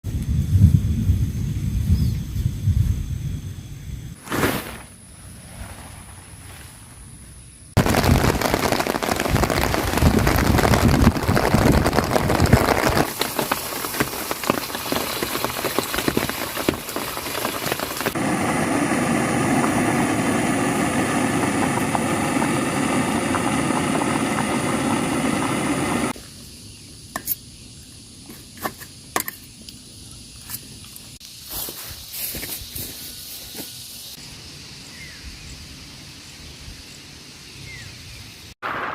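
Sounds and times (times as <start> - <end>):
heavy rain hissing: 7.8 - 26.2.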